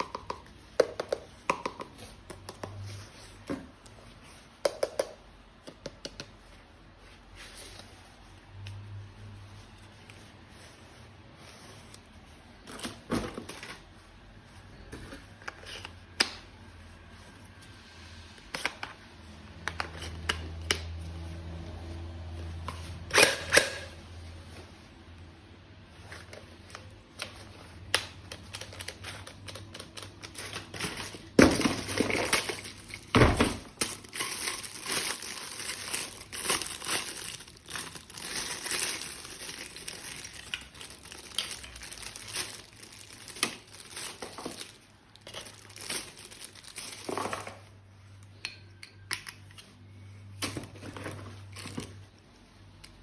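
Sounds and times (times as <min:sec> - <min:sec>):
plastic packaging crinkling and tearing: 0:26.2 - 0:47.7.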